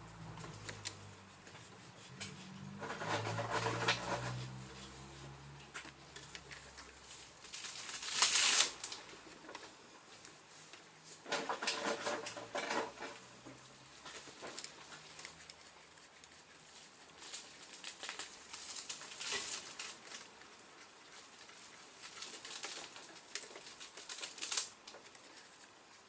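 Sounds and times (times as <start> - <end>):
hand tools and engine parts clicking: 0.0 - 7.0.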